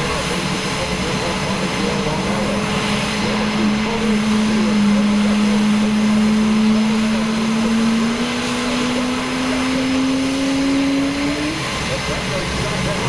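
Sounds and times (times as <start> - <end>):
aircraft engine humming: 0.0 - 13.0.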